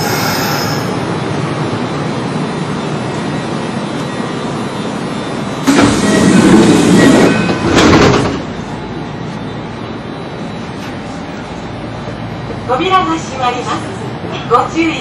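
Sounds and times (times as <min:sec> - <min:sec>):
electric train running noise: 0:00.0 - 0:14.7.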